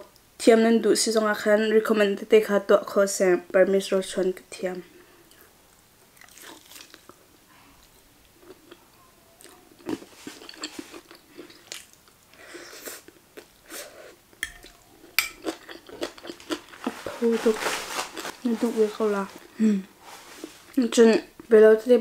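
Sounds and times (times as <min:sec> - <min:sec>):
chewing food: 0:06.2 - 0:07.2, 0:07.8 - 0:13.8, 0:14.4 - 0:19.5.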